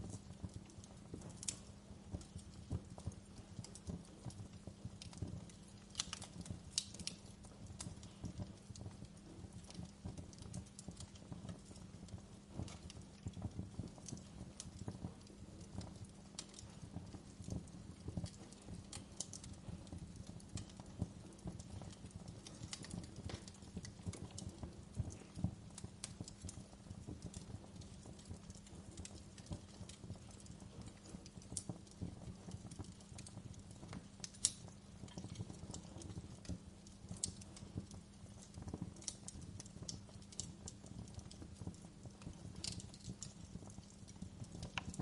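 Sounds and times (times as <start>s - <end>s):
sharp fire snaps: 0.0s - 45.0s
wood fire crackling: 0.0s - 45.0s.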